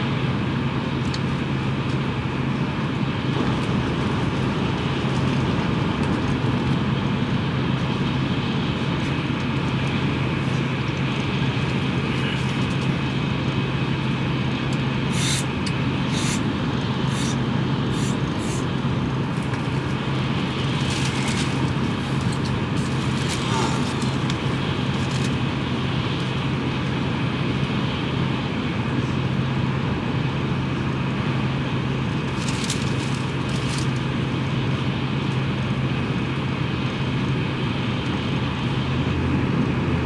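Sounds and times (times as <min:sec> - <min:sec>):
train cabin rumbling rush: 0:00.0 - 0:40.0
brief high hisses: 0:15.1 - 0:15.5, 0:16.1 - 0:16.4, 0:17.1 - 0:18.7.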